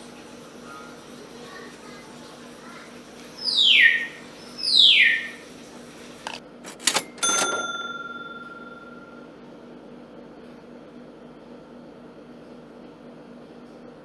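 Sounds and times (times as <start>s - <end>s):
sharp clicks: 6.2s - 9.0s
bright bell-like ding: 7.2s - 9.3s.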